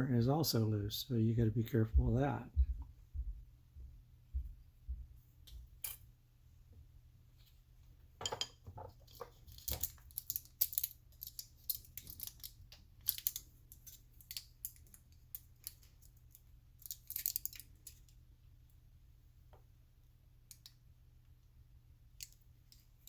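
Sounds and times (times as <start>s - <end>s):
plastic parts clicking and tapping: 8.2s - 18.2s.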